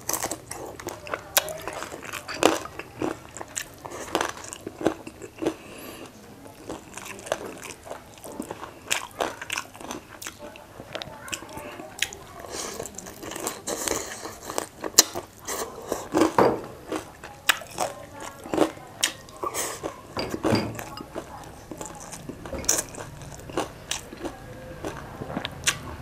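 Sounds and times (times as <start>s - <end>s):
person crunching fried food: 0.0s - 20.0s, 21.1s - 26.0s.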